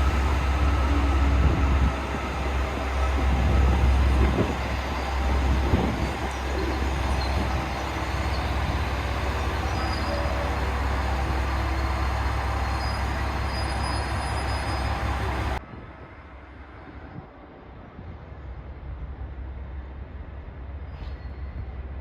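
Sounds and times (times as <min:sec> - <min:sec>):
train wheels squealing: 0:00.0 - 0:15.6, 0:20.8 - 0:22.0
train wheels rumbling on rails: 0:00.0 - 0:16.0.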